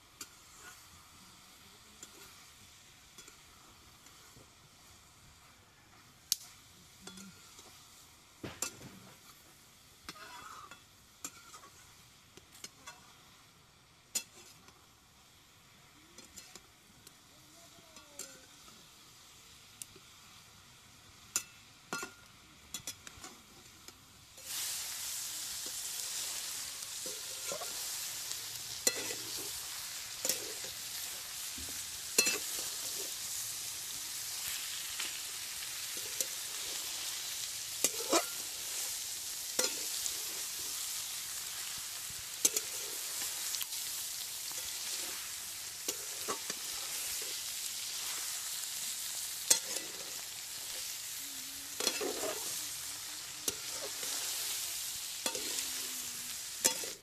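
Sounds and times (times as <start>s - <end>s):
chicken sizzling in a pan: 0.0s - 57.0s
metal spatula scraping a pan: 0.2s - 1.0s, 10.1s - 11.9s, 14.1s - 14.7s, 24.4s - 51.0s, 51.7s - 57.0s.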